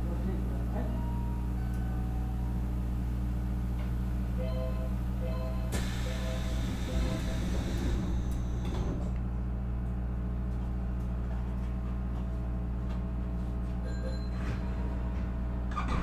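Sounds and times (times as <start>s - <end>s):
train equipment humming: 0.0s - 9.4s
train doors sliding and rattling: 2.6s - 9.2s, 14.4s - 16.0s.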